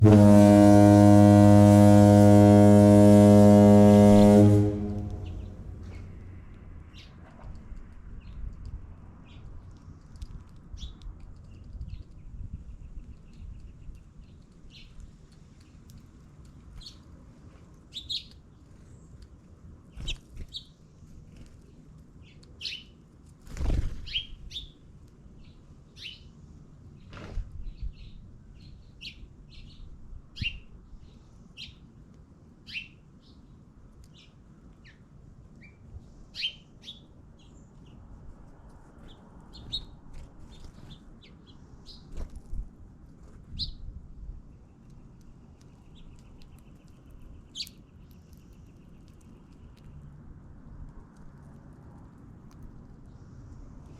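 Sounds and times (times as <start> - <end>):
low thumps: 0.0 - 6.3
small birds chirping: 9.2 - 23.0, 24.0 - 26.3, 35.6 - 38.1, 38.9 - 42.2, 44.4 - 50.2.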